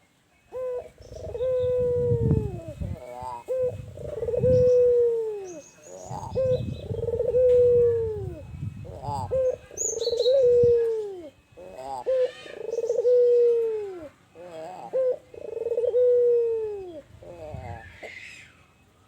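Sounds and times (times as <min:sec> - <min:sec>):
dove cooing: 0:00.5 - 0:18.6.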